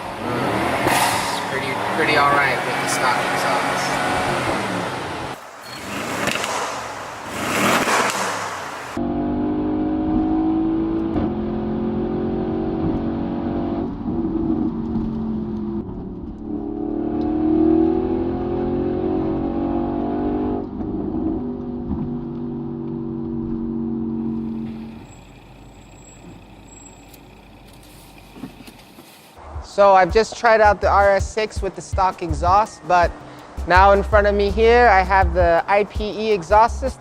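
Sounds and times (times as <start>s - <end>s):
engine note rising and falling: 0.0s - 28.3s
car engine revving: 0.0s - 31.2s.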